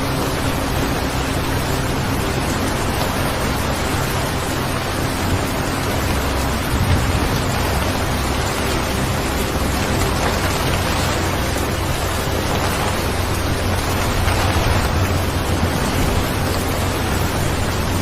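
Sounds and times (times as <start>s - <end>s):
steady rain: 0.0s - 18.0s
low rumble: 4.8s - 18.0s.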